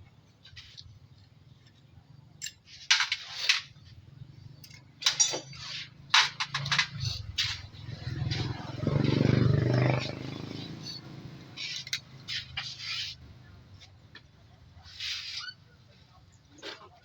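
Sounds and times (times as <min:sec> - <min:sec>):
metal tools clinking: 0:02.4 - 0:03.9, 0:04.6 - 0:07.8.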